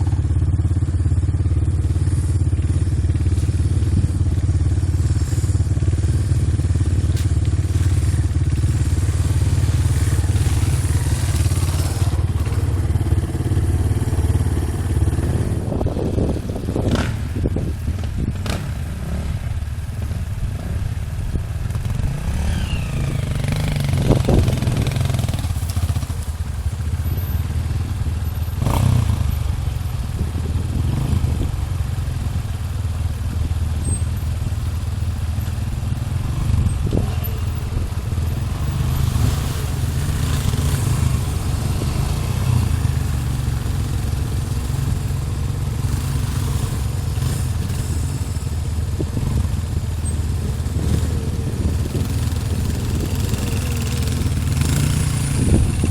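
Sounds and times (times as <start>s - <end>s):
dirt bike engine running: 0.0s - 55.9s.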